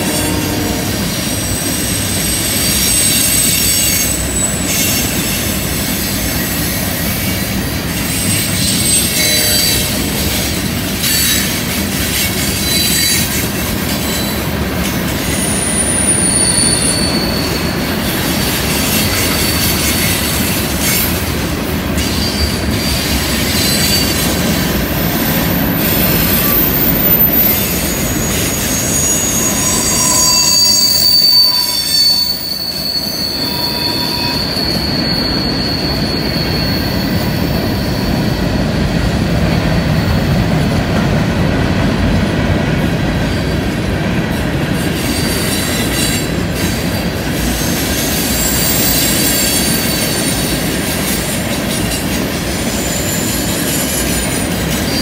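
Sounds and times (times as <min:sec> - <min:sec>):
high-pitched wheel squeal: 0:00.0 - 0:05.4, 0:08.0 - 0:11.5, 0:12.5 - 0:14.4, 0:15.2 - 0:21.1, 0:22.0 - 0:38.7, 0:47.4 - 0:52.1, 0:52.7 - 0:55.0
steel wheels rumbling on rail: 0:00.0 - 0:55.0.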